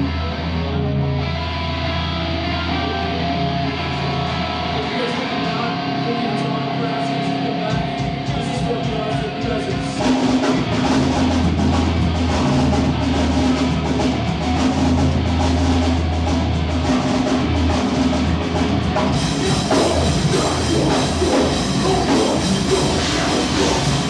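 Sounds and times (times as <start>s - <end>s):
electric guitar notes: 0.0s - 9.4s, 10.0s - 24.0s
bass line: 0.0s - 24.0s
drums: 0.0s - 24.0s
live band playing: 7.6s - 24.0s.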